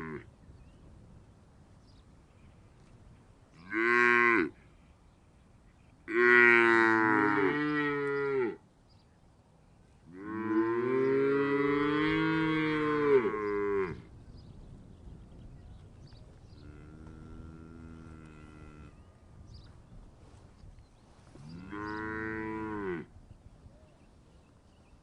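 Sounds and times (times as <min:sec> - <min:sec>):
cow mooing: 0:10.2 - 0:14.0, 0:16.6 - 0:19.0, 0:21.5 - 0:23.1.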